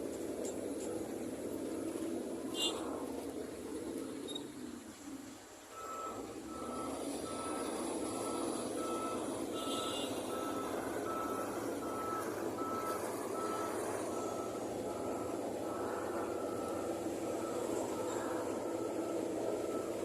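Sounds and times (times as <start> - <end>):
diesel engine running: 0.0 - 20.0
reversing alarm beeping: 5.7 - 20.0.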